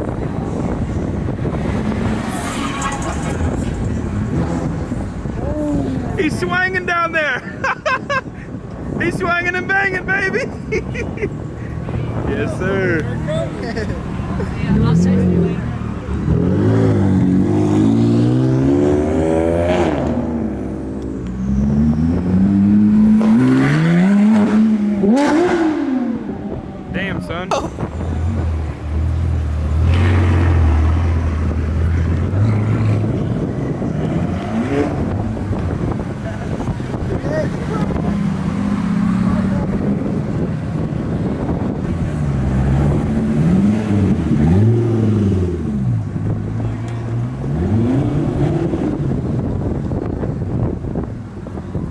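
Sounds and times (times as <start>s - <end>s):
car engine revving hard: 21.5s - 26.3s, 27.8s - 50.4s.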